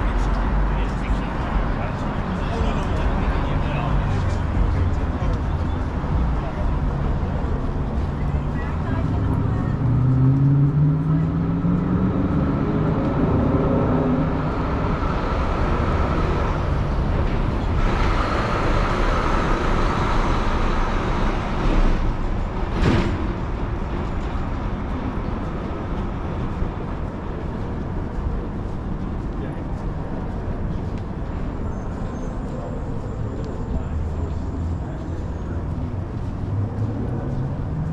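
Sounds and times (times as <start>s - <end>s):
cars passing: 0.0s - 37.9s
vehicle engine pulling away: 8.8s - 23.4s.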